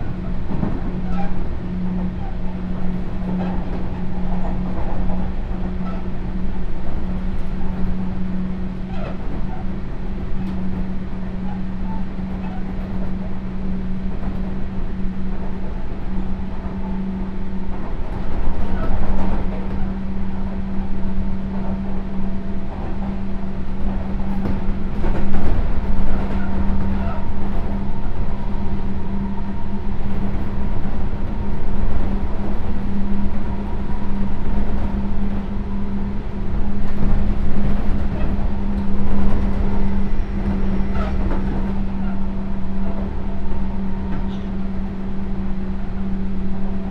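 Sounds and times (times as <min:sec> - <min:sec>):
wheels rumbling on rail: 0:00.0 - 0:46.9
electric train motor hum: 0:19.5 - 0:46.9.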